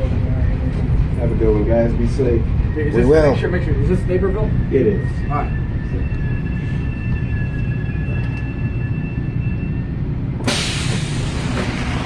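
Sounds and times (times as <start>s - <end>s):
high whine: 0.0s - 12.0s
train low rumble: 0.0s - 12.0s
loud hiss: 10.5s - 12.0s.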